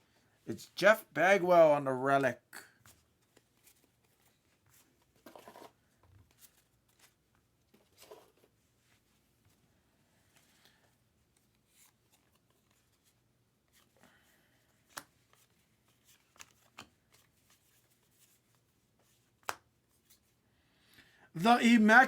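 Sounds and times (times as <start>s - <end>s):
trading cards rustling: 2.9s - 8.6s, 14.7s - 20.4s.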